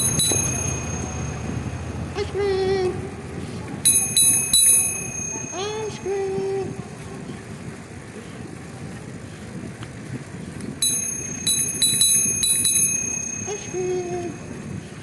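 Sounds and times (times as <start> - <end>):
bicycle bell ringing: 0.0 - 2.4, 3.8 - 6.8, 10.8 - 15.0
bicycle riding noise: 0.0 - 15.0.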